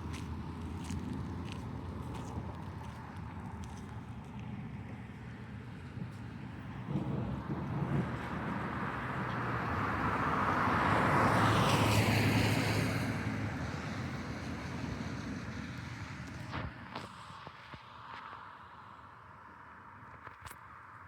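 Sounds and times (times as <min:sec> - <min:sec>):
car driving past on wet road: 0:06.3 - 0:16.6.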